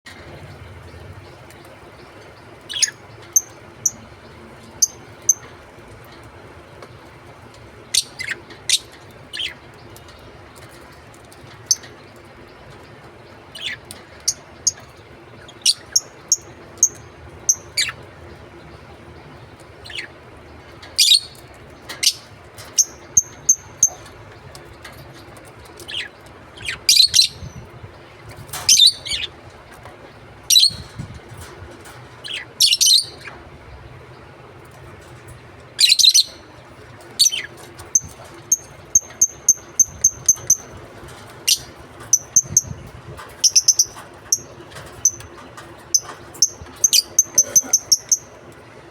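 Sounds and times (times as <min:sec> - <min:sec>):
lovebirds chirping: 0:00.2 - 0:05.6, 0:35.8 - 0:48.4.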